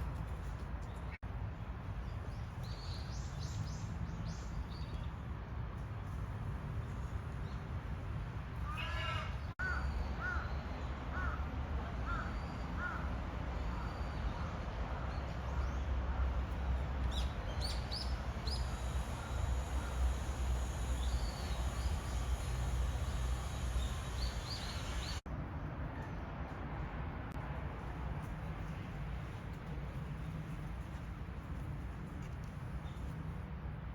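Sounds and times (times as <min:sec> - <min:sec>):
low outdoor rumble: 0:00.0 - 0:33.9
crow cawing: 0:08.6 - 0:10.4, 0:11.1 - 0:11.4
small birds chirping: 0:17.1 - 0:25.2.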